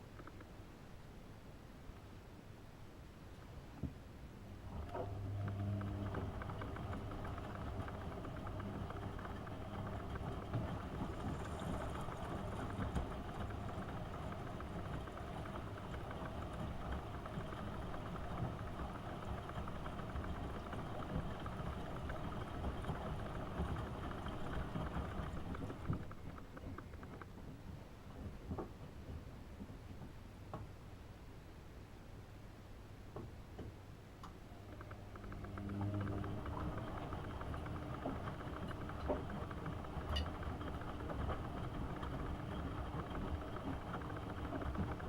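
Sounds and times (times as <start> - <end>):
washing machine motor humming: 4.4 - 27.0, 34.4 - 45.0.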